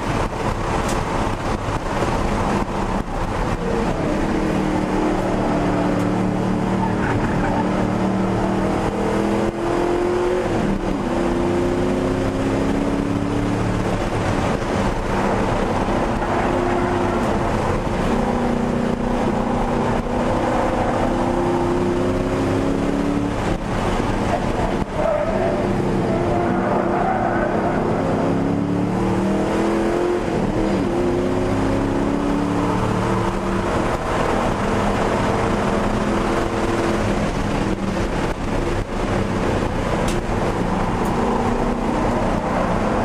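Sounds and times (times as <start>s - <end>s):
car engine accelerating hard: 0.0s - 43.0s.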